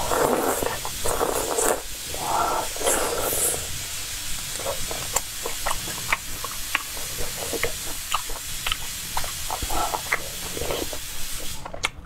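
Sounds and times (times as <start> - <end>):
wet chewing and lip smacks: 4.4 - 12.0.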